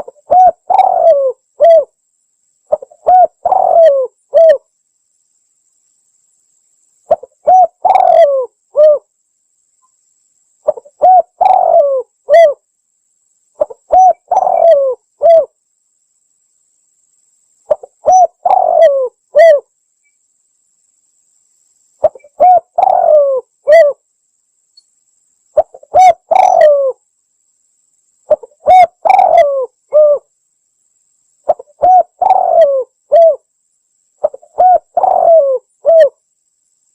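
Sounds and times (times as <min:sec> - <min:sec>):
dove cooing: 0:00.0 - 0:02.0, 0:02.7 - 0:04.6, 0:07.1 - 0:09.1, 0:10.6 - 0:12.6, 0:13.6 - 0:15.5, 0:17.7 - 0:19.7, 0:22.0 - 0:24.0, 0:25.6 - 0:27.0, 0:28.3 - 0:30.3, 0:31.5 - 0:33.4, 0:34.2 - 0:36.2.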